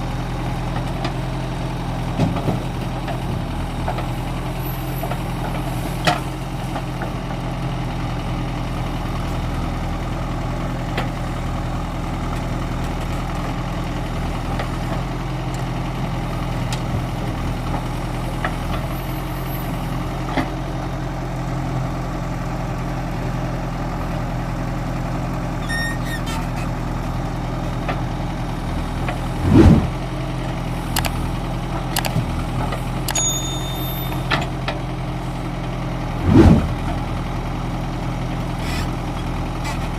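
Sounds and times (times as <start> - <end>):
diesel engine idling: 0.0 - 39.9
heavy thump: 29.4 - 30.0, 36.2 - 36.9.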